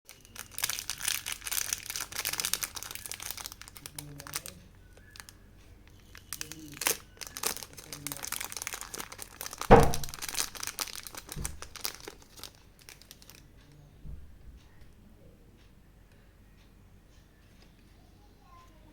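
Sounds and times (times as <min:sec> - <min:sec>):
plastic packaging crinkling and tearing: 0:00.1 - 0:13.5
loud knock: 0:09.7 - 0:10.2.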